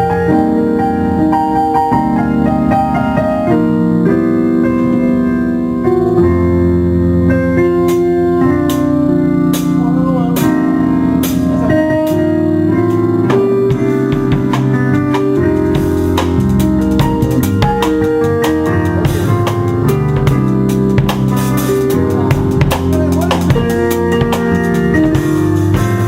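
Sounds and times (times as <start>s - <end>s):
electric keyboard chords: 0.0s - 26.0s.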